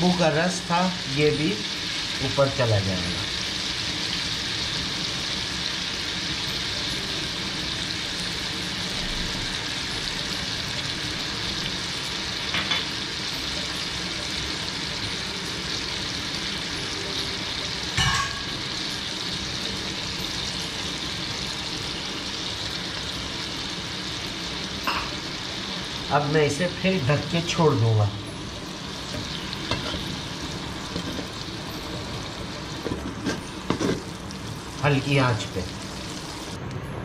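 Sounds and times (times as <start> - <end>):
chicken sizzling in oil: 0.0 - 36.6.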